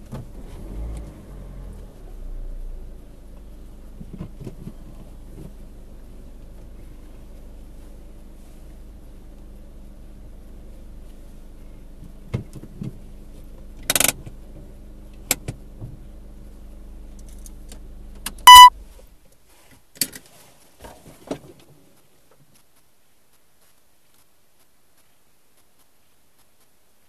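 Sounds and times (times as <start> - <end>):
car engine idling: 1.2 - 19.2
loud electronic beep: 18.5 - 18.7.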